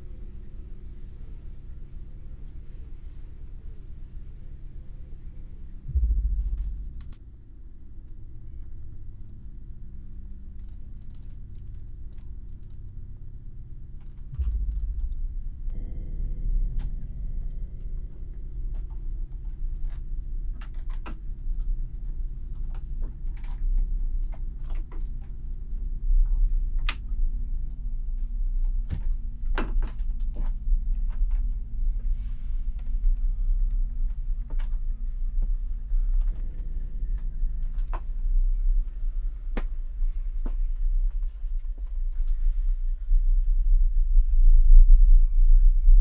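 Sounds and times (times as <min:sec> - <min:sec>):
low rumbling drone: 0:00.0 - 0:46.0.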